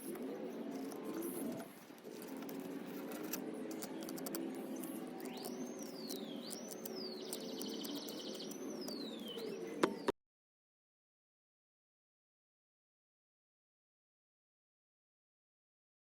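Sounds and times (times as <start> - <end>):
bird singing whistled notes: 5.2 - 10.1.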